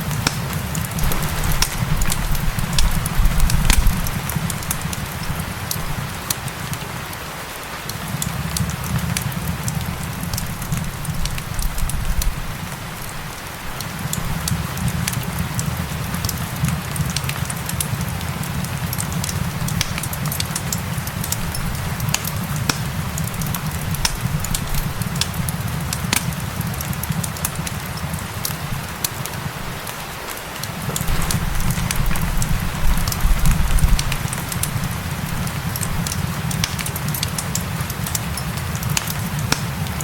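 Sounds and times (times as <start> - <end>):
fireplace crackling: 0.0 - 40.0
rain hiss: 0.0 - 40.0.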